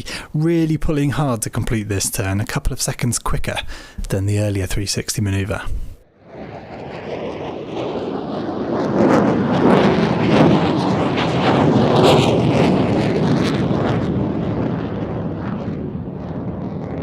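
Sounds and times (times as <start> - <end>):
fighter jet engine roar: 6.1 - 17.0.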